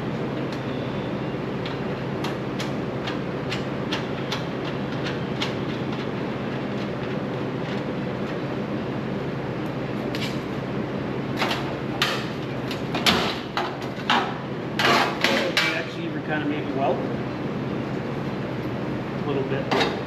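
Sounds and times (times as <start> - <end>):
laser cutter machine hum: 0.0 - 6.7.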